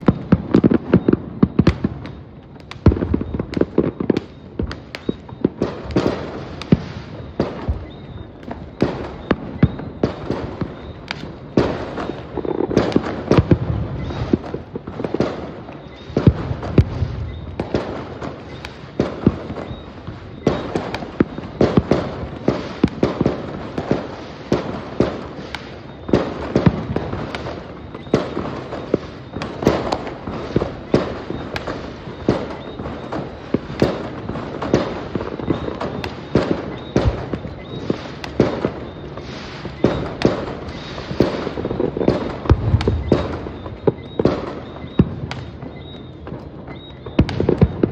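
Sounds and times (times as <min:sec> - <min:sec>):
fireworks exploding: 0:00.0 - 0:47.9.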